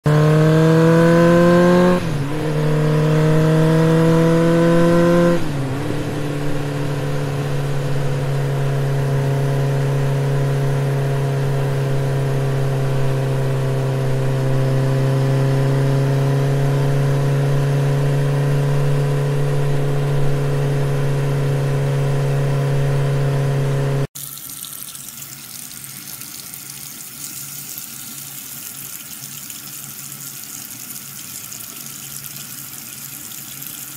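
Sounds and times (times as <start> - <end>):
motor humming and revving: 0.0 - 24.1
running water: 24.2 - 33.9.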